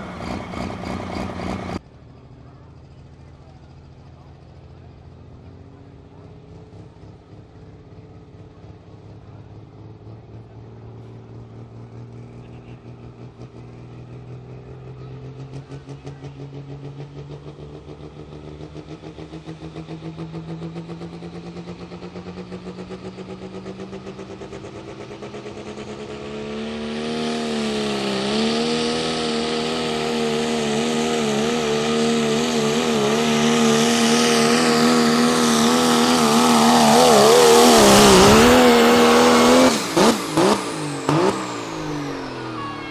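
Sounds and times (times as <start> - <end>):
diesel truck engine revving: 0.0 - 42.9
hissing turbo roar: 17.8 - 42.9.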